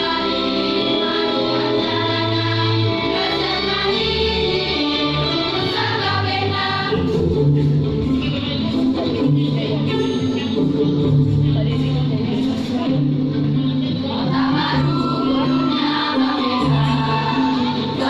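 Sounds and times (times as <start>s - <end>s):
choir singing: 0.0s - 7.6s, 14.0s - 18.0s.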